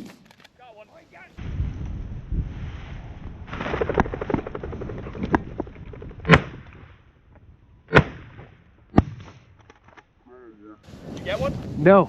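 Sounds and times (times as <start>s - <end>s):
shotgun shots: 7.9s - 9.4s.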